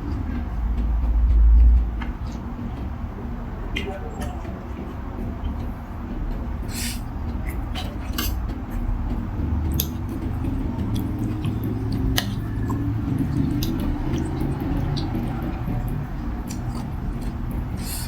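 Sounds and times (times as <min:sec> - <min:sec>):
wet chewing: 0:06.6 - 0:18.0
utensils clicking against bowl: 0:06.8 - 0:08.6, 0:09.7 - 0:18.0.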